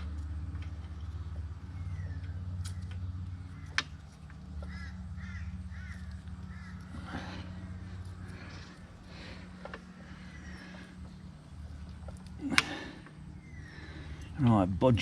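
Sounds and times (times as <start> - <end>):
steady low hum: 0.0 - 15.0
crow cawing: 4.6 - 9.2.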